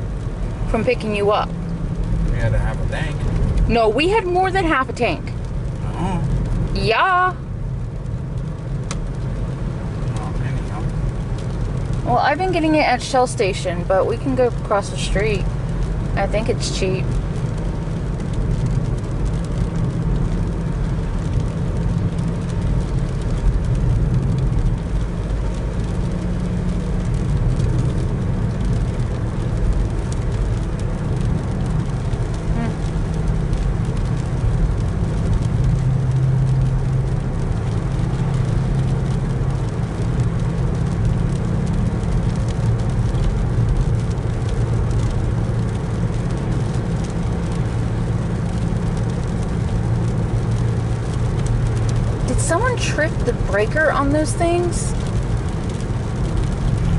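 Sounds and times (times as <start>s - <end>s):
car engine and tyre drone: 0.0s - 56.9s
road hiss: 2.3s - 3.9s.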